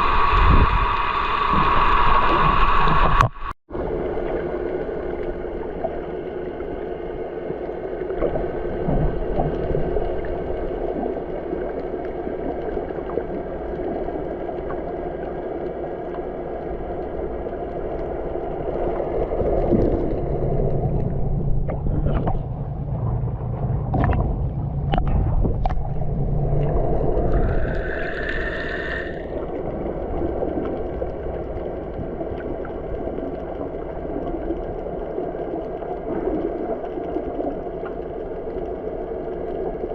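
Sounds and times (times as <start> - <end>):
water sloshing past hull: 18.8 - 27.7.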